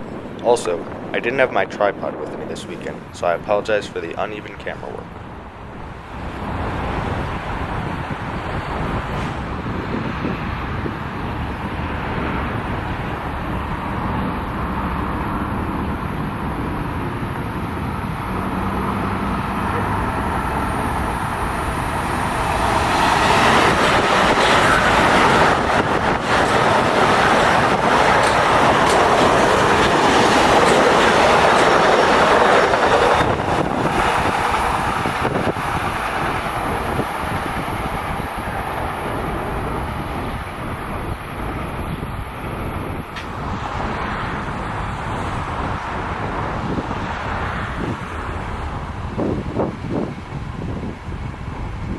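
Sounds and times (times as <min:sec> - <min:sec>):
train wheels rushing on rails: 0:05.1 - 0:51.9
train knocks: 0:12.2 - 0:44.7.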